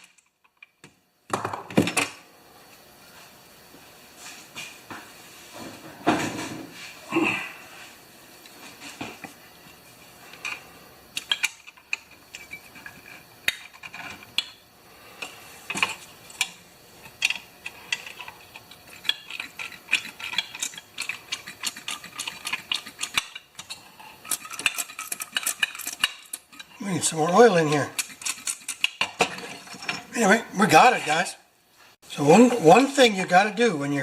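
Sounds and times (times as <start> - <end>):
recoil starter clicking and ratcheting: 15.2 - 26.7.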